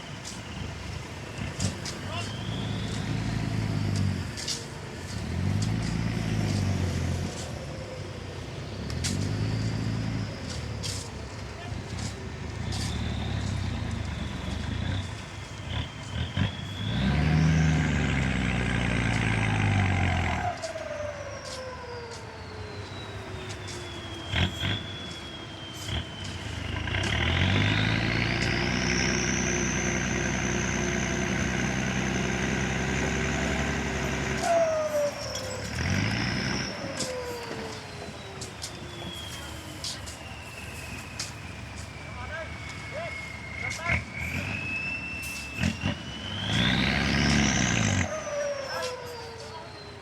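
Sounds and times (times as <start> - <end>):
diesel engine revving: 0.0 - 21.6, 22.7 - 50.0.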